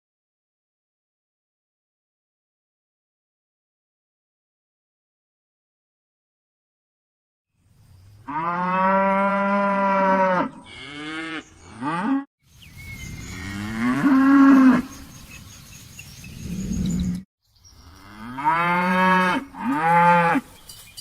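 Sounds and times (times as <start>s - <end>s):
cattle mooing: 8.3s - 12.3s, 13.3s - 15.0s.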